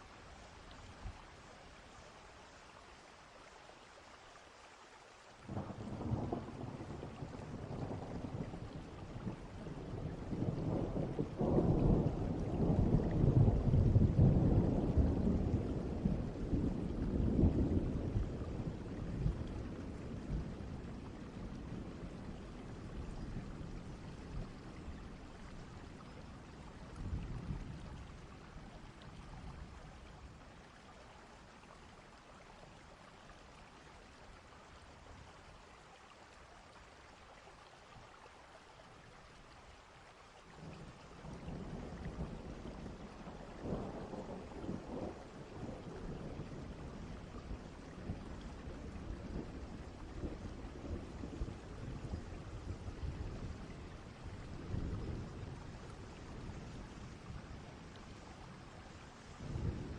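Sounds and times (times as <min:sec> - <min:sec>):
distant rolling thunder: 0:05.5 - 0:28.5, 0:40.6 - 0:59.9
rain hissing: 0:40.6 - 0:59.9.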